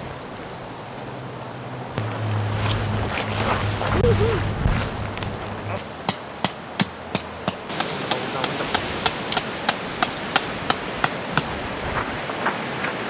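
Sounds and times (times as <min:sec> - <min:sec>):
wind noise: 0:02.0 - 0:05.8
tent peg being hammered: 0:05.7 - 0:11.6.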